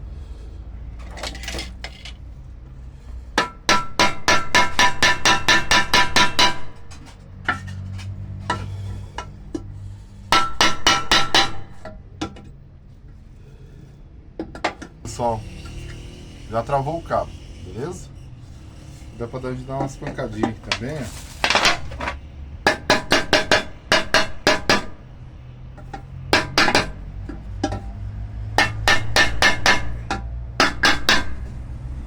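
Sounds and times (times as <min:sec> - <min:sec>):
hammer tapping metal rivets: 0:03.4 - 0:07.9, 0:10.3 - 0:12.5, 0:19.8 - 0:25.0, 0:25.8 - 0:27.9, 0:28.6 - 0:31.6.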